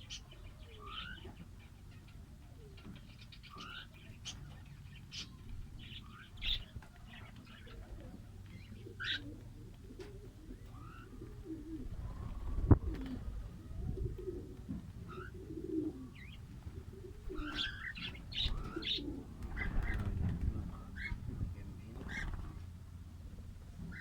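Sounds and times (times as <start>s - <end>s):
cage birds chirping: 0.0s - 24.0s.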